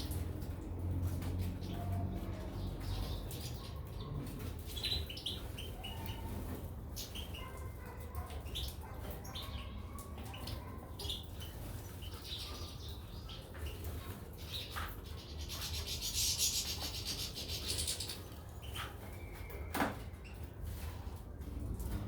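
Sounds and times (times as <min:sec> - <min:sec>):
birds rustling and fluttering: 0:00.0 - 0:22.0.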